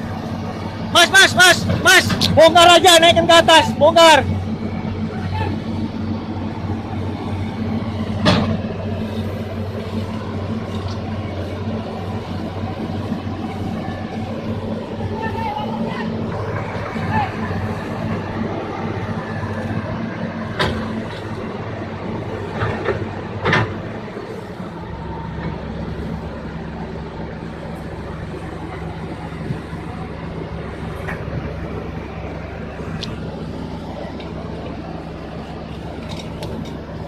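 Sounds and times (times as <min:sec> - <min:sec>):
heavy machinery engine running: 0:00.0 - 0:37.0.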